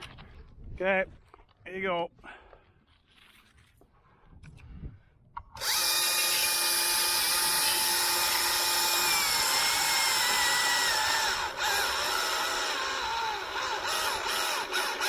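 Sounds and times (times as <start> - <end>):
chainsaw running full throttle: 5.6 - 15.0.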